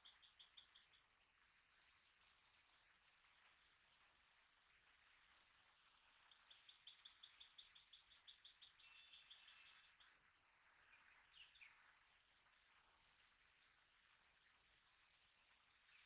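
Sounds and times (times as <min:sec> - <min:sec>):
bird calling: 0:06.3 - 0:10.0.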